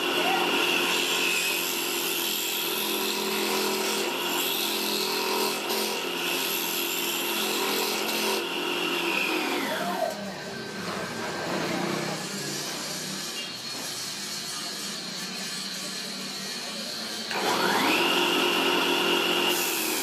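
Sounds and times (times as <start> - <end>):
power tool whining: 0.0 - 20.0.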